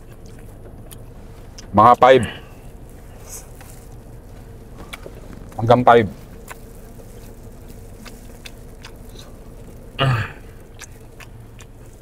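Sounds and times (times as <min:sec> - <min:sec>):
chewing with mouth clicks: 0:00.0 - 0:12.0
low car cabin hum: 0:00.0 - 0:12.0
short voiced throat sound: 0:10.0 - 0:10.6.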